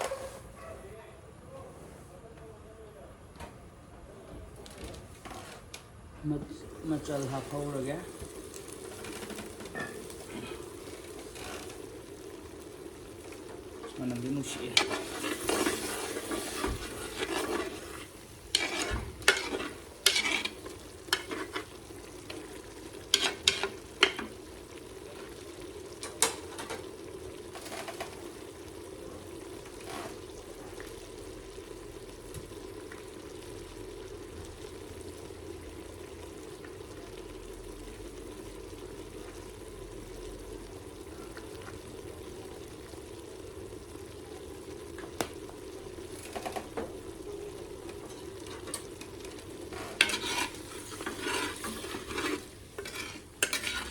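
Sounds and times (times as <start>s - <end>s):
pork sizzling in a pan: 6.5s - 53.9s
utensil scraping and knocking pan: 13.9s - 24.4s, 49.6s - 53.9s.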